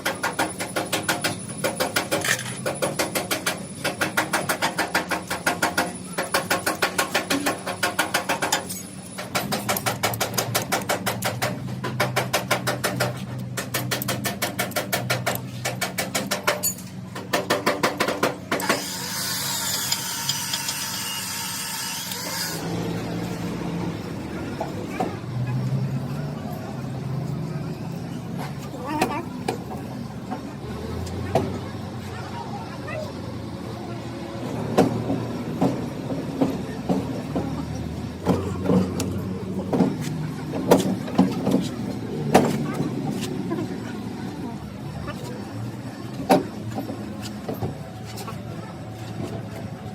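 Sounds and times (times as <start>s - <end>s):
metal-on-metal hammering: 0.0s - 22.7s.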